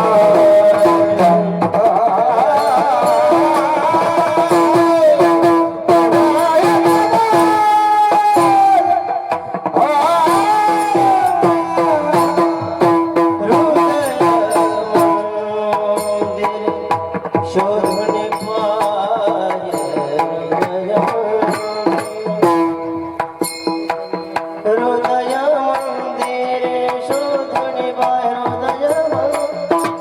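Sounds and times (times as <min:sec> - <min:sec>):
person singing: 0:00.0 - 0:22.8
hand drum strokes: 0:00.0 - 0:30.0.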